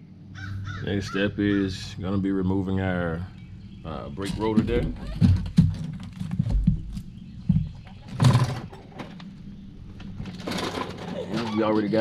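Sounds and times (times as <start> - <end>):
rough metal clatter: 7.8 - 9.3, 10.1 - 12.0.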